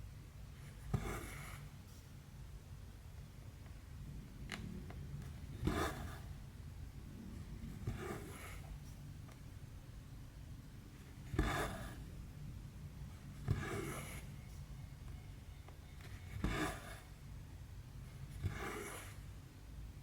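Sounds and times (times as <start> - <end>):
needle poking through fabric: 5.5 - 6.2.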